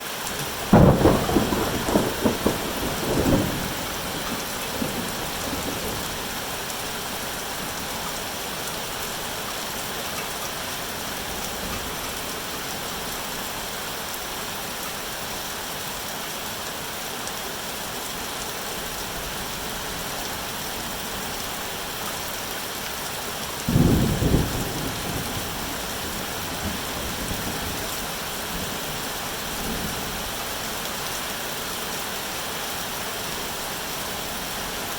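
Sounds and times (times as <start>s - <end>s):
heavy rain hissing: 0.0s - 34.9s
thunder rumbling: 0.4s - 7.8s, 23.7s - 27.8s.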